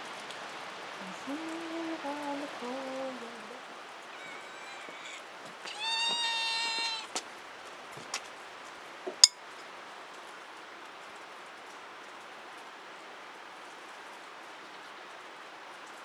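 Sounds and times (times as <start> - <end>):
rain hissing: 0.0 - 10.8
cat meowing: 4.1 - 7.2.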